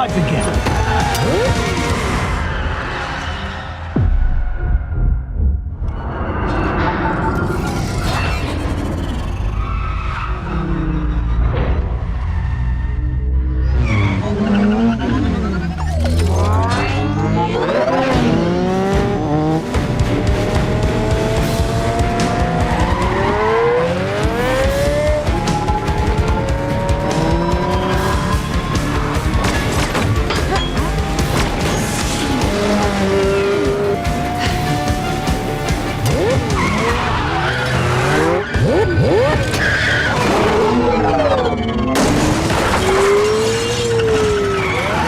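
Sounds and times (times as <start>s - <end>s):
engines revving hard: 0.0s - 3.9s, 13.6s - 45.0s
tyres squealing and skidding: 0.0s - 4.0s, 6.8s - 18.6s, 22.4s - 45.0s
action film score: 0.0s - 45.0s
sports car engine revving: 17.9s - 28.3s.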